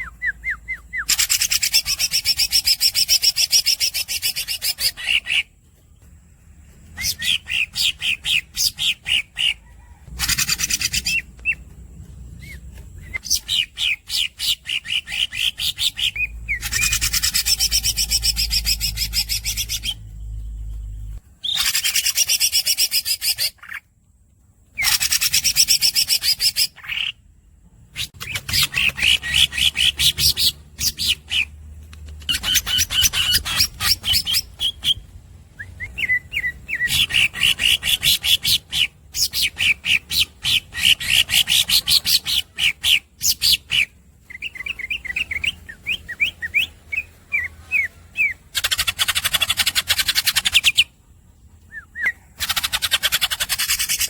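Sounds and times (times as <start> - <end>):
bird singing high trills: 12.4 - 23.8.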